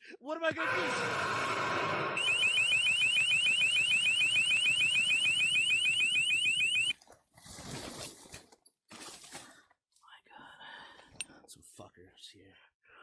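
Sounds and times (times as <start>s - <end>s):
electronic alarm chirping: 2.1s - 7.0s.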